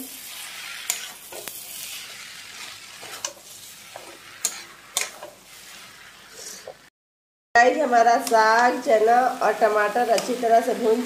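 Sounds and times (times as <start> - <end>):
greens sizzling in a pan: 0.0 - 6.9, 7.6 - 11.0
spatula scraping a pan: 0.0 - 6.9.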